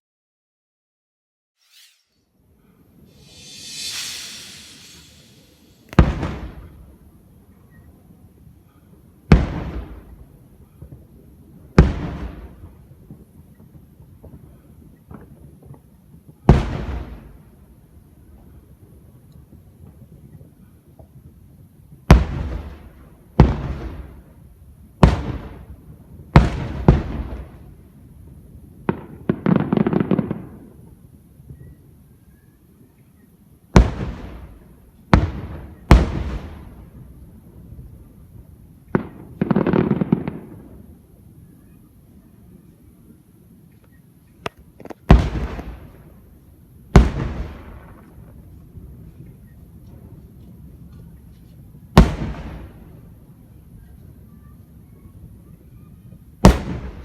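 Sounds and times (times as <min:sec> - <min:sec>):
firework crackling pops: 0:03.1 - 0:06.9, 0:28.8 - 0:30.9, 0:33.8 - 0:37.3, 0:38.9 - 0:40.9, 0:44.3 - 0:46.2, 0:47.0 - 0:49.0, 0:52.0 - 0:53.0, 0:56.4 - 0:57.0
firework shells bursting: 0:03.2 - 0:06.3
firework booms: 0:03.2 - 0:06.8, 0:35.1 - 0:37.1, 0:45.1 - 0:46.1, 0:47.0 - 0:48.0, 0:52.0 - 0:52.8, 0:56.4 - 0:57.0.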